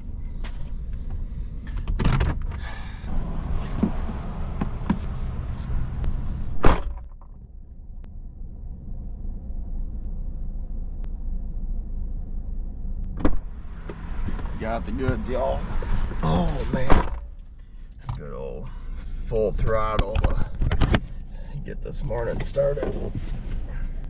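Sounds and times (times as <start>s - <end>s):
low steady hum: 0.0s - 24.0s
truck door slamming: 16.5s - 17.4s.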